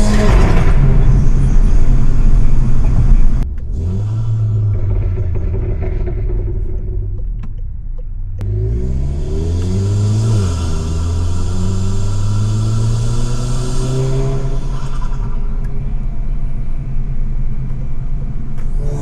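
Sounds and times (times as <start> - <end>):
exhaust crack and pops: 0.0 - 8.5
car engine pulling hard: 0.0 - 19.0
low exhaust drone: 0.0 - 19.0.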